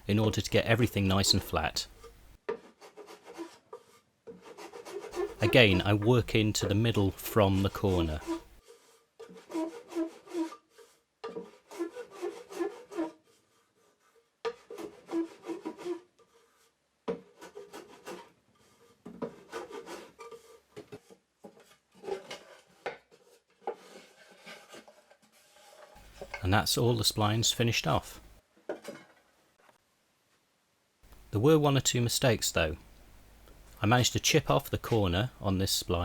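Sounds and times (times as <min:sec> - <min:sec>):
hand plane strokes on wood: 0:01.0 - 0:26.4.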